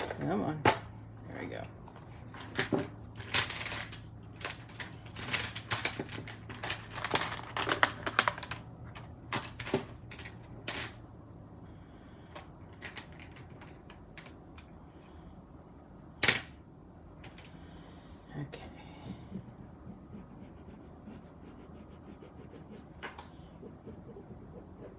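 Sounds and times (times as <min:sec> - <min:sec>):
pen scratching on card: 0:19.7 - 0:24.9.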